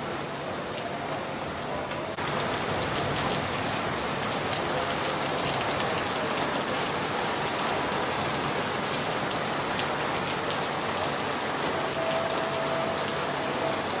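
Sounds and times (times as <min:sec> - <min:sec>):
steady rain pattering: 0:00.0 - 0:14.0.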